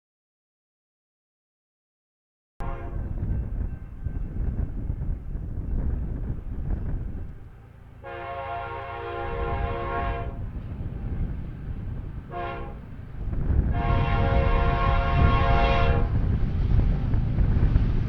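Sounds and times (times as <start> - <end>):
locomotive air horn: 2.6 - 3.2, 8.0 - 10.5, 12.3 - 12.9, 13.6 - 16.3
train rumble: 2.6 - 18.0.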